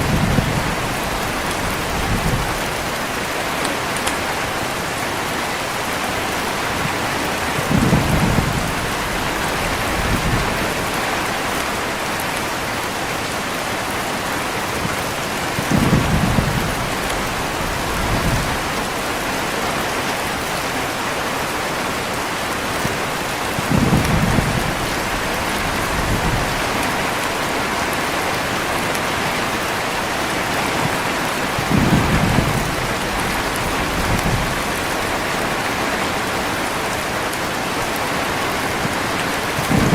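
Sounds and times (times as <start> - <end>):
low thunder rumbles: 0.0 - 3.0, 6.8 - 11.6, 15.4 - 19.9, 23.5 - 27.9, 30.6 - 35.8, 39.5 - 39.9
heavy rainfall: 0.0 - 39.9.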